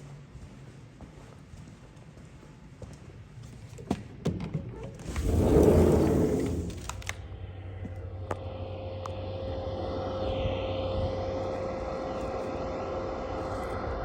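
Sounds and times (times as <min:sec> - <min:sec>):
furnace blower hum and whine: 0:05.0 - 0:14.0.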